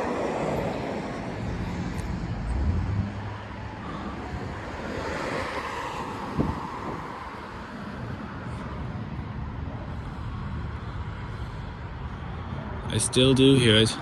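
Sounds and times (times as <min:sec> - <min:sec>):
wind buffeting microphone: 0:00.0 - 0:09.8
car passing: 0:00.0 - 0:14.0.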